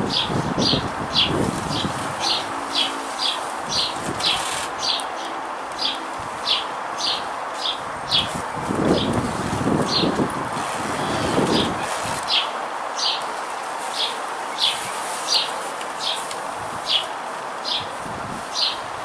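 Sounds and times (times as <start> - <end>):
steady background hiss: 0.0 - 19.0
bird chirping: 0.1 - 8.4.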